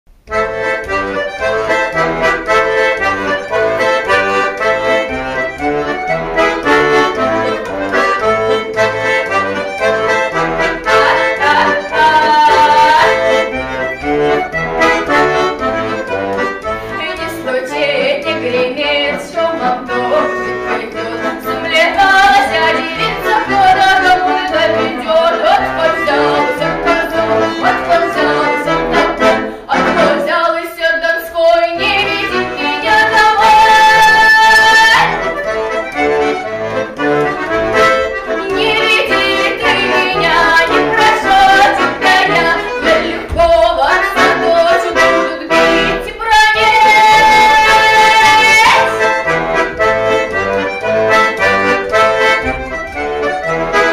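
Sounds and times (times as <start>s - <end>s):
accordion playing dance tune: 0.1s - 53.9s.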